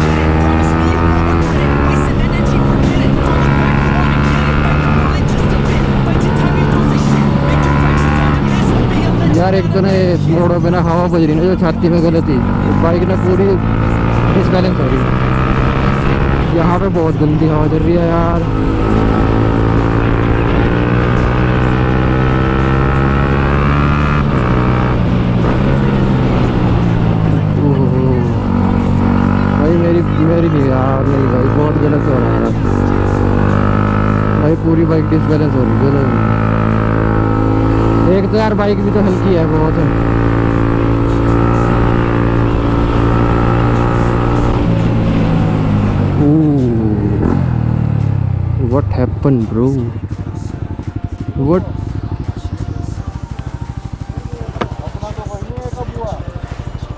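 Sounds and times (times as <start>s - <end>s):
person speaking: 0.0s - 22.1s, 25.4s - 36.4s, 37.8s - 47.4s, 48.5s - 50.0s
motorcycle engine at speed: 0.0s - 56.9s.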